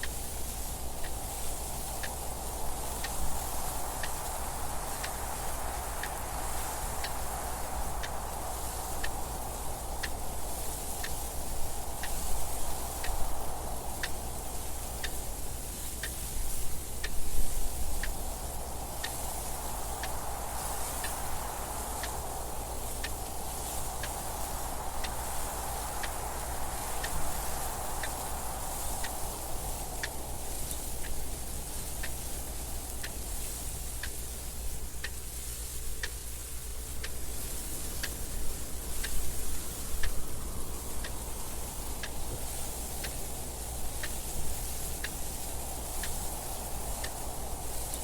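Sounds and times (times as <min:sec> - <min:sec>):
wind noise: 0:00.0 - 0:48.0
clock ticking: 0:08.0 - 0:15.2, 0:24.0 - 0:27.4, 0:28.0 - 0:34.4, 0:36.0 - 0:48.0.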